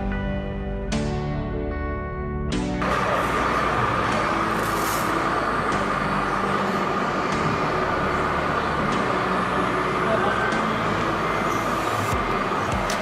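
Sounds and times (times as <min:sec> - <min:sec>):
toy truck motor whining: 0:02.9 - 0:13.0.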